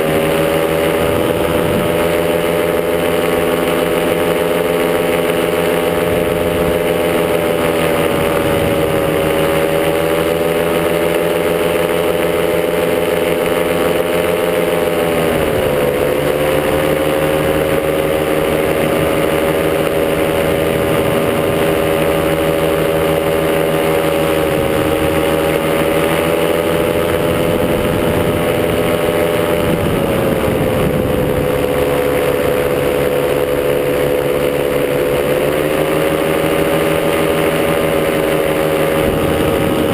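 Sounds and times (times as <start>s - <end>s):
paramotor engine and propeller: 0.0s - 39.9s.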